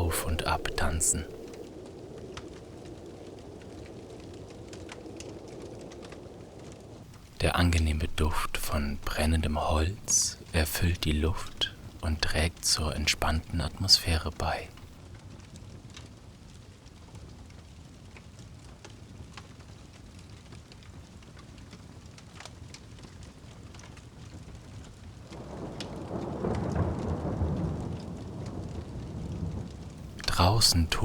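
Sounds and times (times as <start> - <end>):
small crackles: 0.0 - 15.0
steady rain: 0.0 - 31.0.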